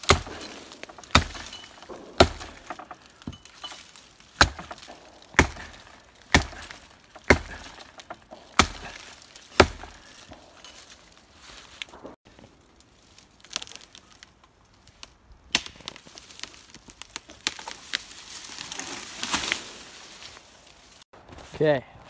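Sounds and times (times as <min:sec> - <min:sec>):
axe chopping wood: 0:00.0 - 0:10.9.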